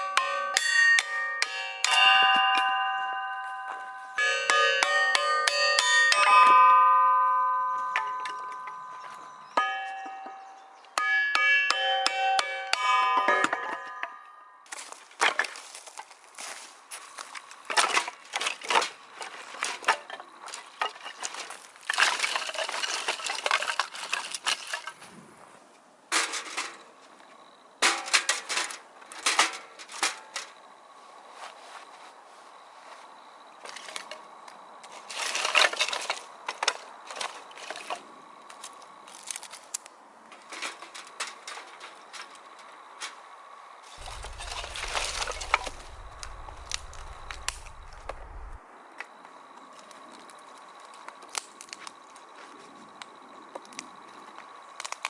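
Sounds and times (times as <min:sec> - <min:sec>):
metal parts clinking and scraping: 0:17.7 - 0:25.0, 0:44.0 - 0:48.6
rustling: 0:43.9 - 0:48.6
low rumble: 0:44.0 - 0:48.6.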